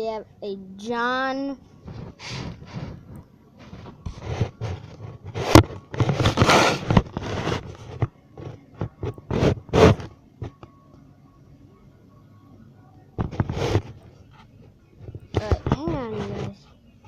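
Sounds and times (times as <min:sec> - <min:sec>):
scraping and rustling handling noise: 0:01.2 - 0:10.8, 0:13.2 - 0:17.0.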